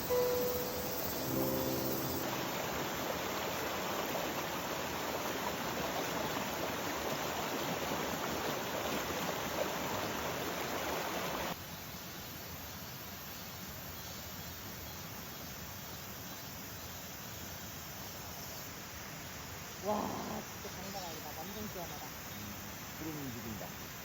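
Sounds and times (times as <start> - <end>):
steady hiss: 0.0 - 24.0
water rushing over rocks: 1.3 - 11.6.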